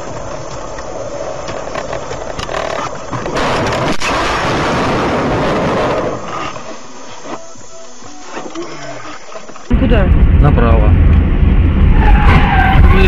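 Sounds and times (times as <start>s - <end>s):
car road and engine noise: 9.4s - 13.0s.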